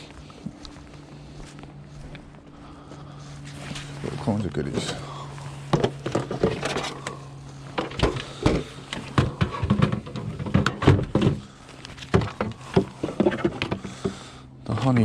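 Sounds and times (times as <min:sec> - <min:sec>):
steady low hum: 0:00.0 - 0:15.0
scrap knocking and clunking: 0:04.8 - 0:15.0.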